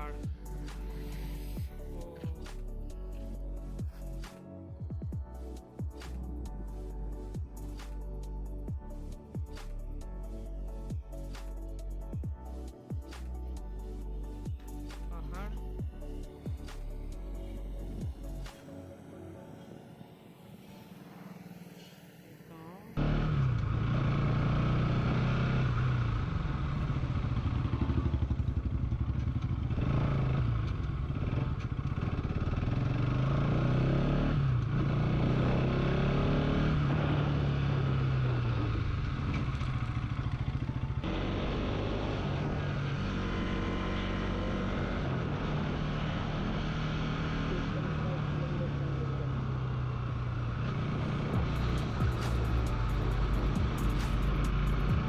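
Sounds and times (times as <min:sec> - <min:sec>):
road and wind noise: 0:00.0 - 0:55.0
motorcycle engine while riding: 0:23.0 - 0:55.0.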